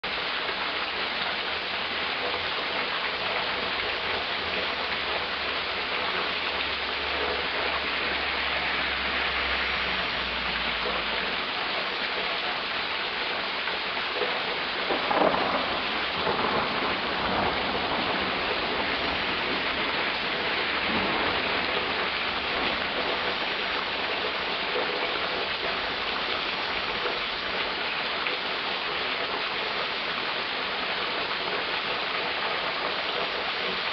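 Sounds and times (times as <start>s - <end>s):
heavy rain pouring: 0.0s - 33.9s
thunder rumbling: 14.7s - 24.9s.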